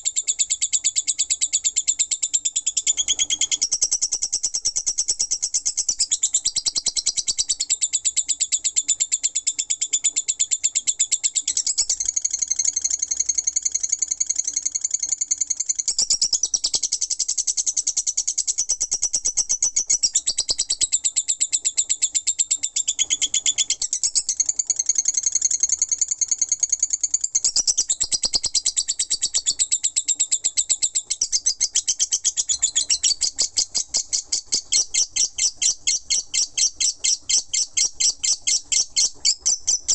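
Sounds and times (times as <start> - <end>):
bird chattering chirps: 11.4 - 39.9.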